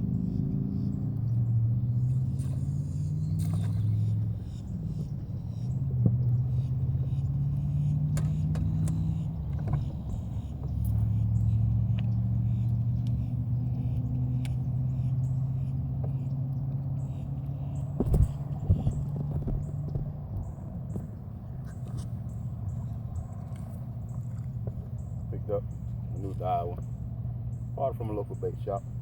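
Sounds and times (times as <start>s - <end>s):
engine humming: 0.0s - 29.0s
sharp clicks and knocks: 8.1s - 11.0s.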